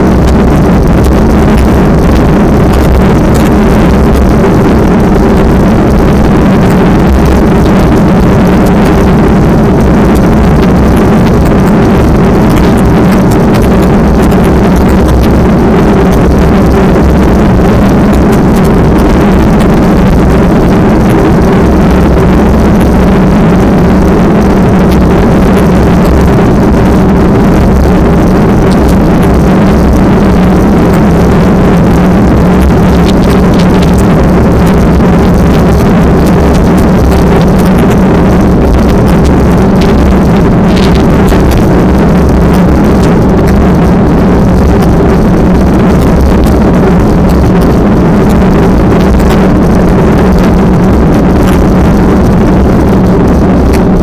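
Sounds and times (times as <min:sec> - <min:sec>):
loud engine drone: 0:00.0 - 0:54.0.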